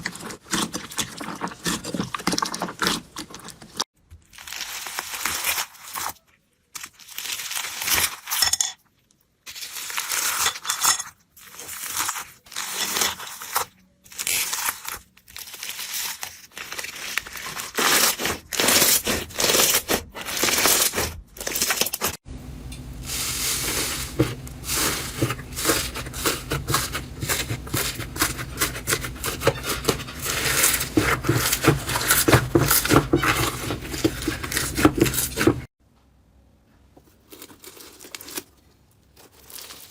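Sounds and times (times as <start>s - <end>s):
low hum: 22.2s - 27.4s.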